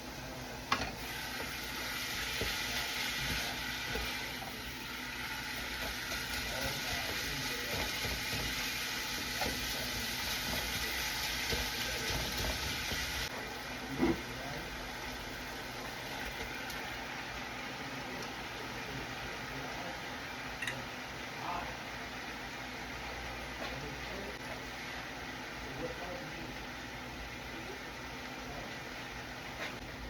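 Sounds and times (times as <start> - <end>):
meat sizzling in a pan: 0.8 - 17.8.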